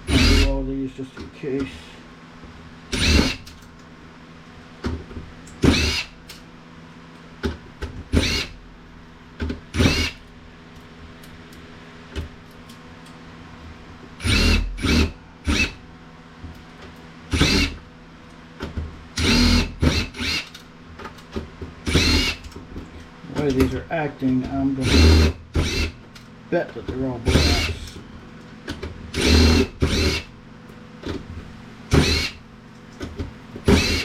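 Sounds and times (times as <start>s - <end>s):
power screwdriver whining: 0.1s - 0.5s, 3.0s - 3.5s, 5.7s - 6.1s, 8.2s - 8.5s, 9.8s - 10.2s, 17.4s - 17.8s, 19.2s - 20.6s, 21.9s - 22.4s, 24.8s - 26.0s, 29.2s - 30.3s, 31.9s - 32.4s, 33.6s - 34.0s.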